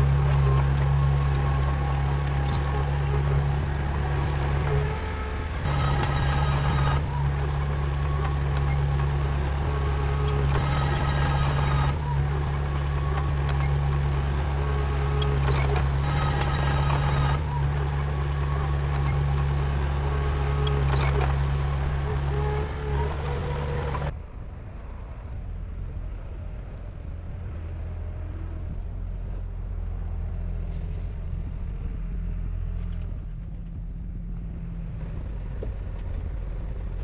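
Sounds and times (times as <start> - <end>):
diesel engine running: 0.0 - 24.1
high machine whine: 0.0 - 24.1.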